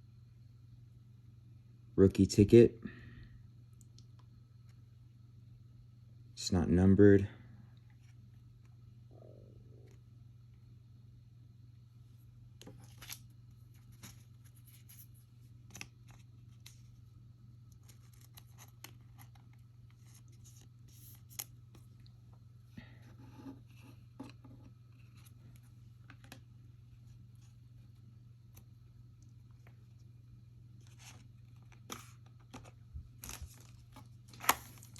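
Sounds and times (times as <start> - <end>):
steady low hum: 0.0 - 34.9
trading cards handled: 12.6 - 17.0, 30.8 - 34.9.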